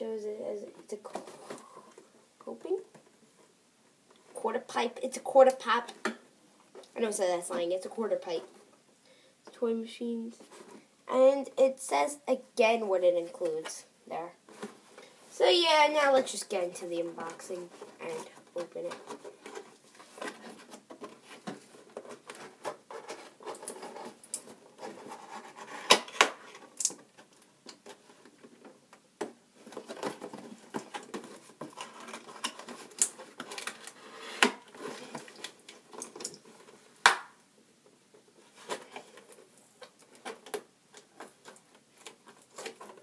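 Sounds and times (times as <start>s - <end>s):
scratching and rustling cardboard: 17.0s - 26.7s.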